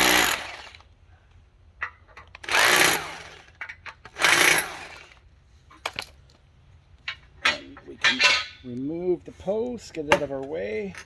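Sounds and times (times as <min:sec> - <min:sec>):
power drill bursts: 0:00.0 - 0:00.8, 0:02.4 - 0:03.5, 0:04.1 - 0:05.1.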